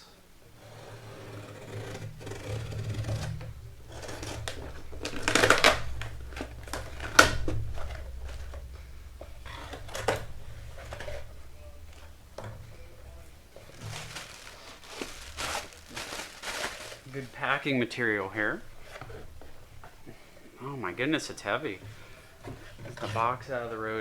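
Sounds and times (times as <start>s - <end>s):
cardboard box rustling and scraping: 0.6s - 8.7s, 9.4s - 17.5s.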